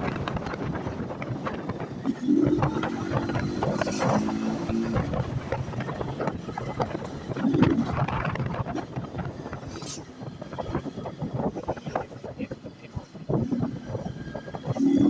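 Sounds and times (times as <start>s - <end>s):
motorcycle engine hum: 0.0s - 15.0s
wind buffeting microphone: 0.0s - 15.0s.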